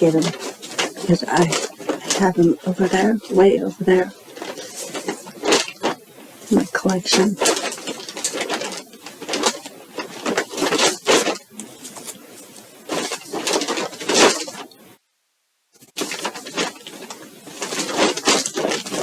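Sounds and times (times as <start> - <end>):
packaging rustling and crinkling: 0.0 - 15.0, 15.8 - 19.0.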